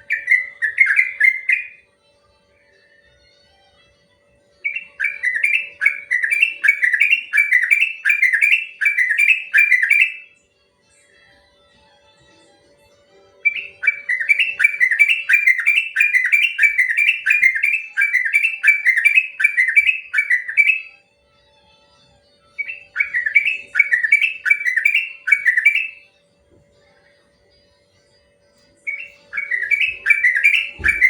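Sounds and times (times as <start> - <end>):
bird singing whistled notes: 0.0 - 1.8, 4.6 - 10.3, 13.4 - 21.0, 22.5 - 26.1, 28.8 - 31.0.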